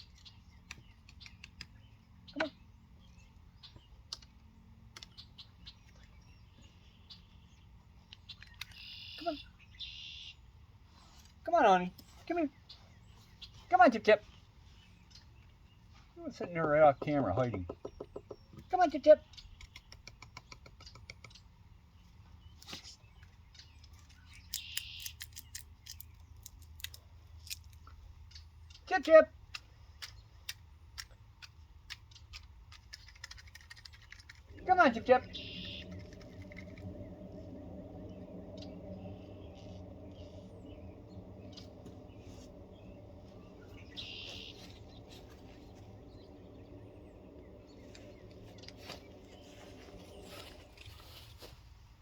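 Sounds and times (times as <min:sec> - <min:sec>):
crisp clicks and crackles: 0:23.8 - 0:27.9, 0:29.5 - 0:34.6
crackling rustle: 0:30.0 - 0:52.0
steady low hum: 0:33.6 - 0:52.0.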